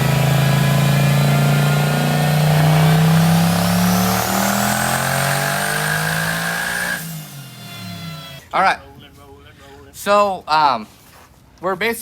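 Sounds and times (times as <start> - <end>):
high whine climbing in pitch: 0.0 - 7.2
engine at full throttle: 0.0 - 8.4.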